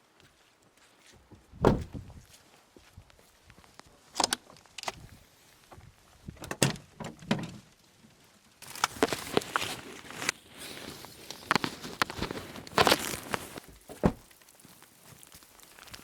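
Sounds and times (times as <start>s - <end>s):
handling knocks and thuds: 1.6s - 2.1s, 12.7s - 14.3s
rustling hiss with crackles: 2.3s - 6.4s, 7.6s - 16.0s.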